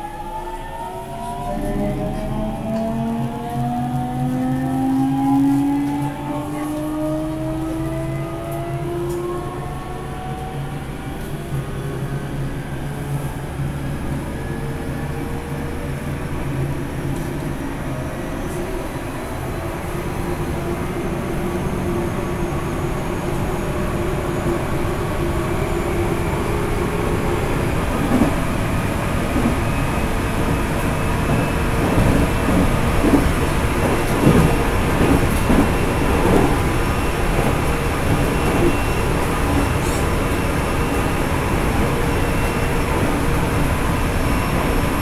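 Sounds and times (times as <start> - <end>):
train rumble: 0.0 - 45.0
wheels clattering on track: 27.0 - 43.6.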